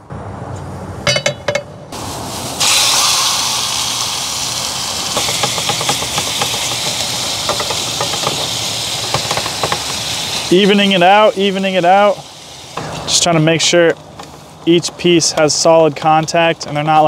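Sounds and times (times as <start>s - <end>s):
chicken sizzling in hot oil: 2.0s - 13.7s
crackling oil pops: 4.6s - 10.0s.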